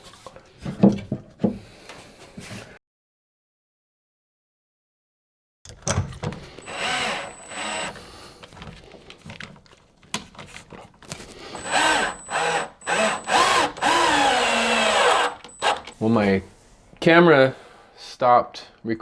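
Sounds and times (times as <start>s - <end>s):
cordless drill driving screws: 6.4s - 9.0s, 11.1s - 16.1s.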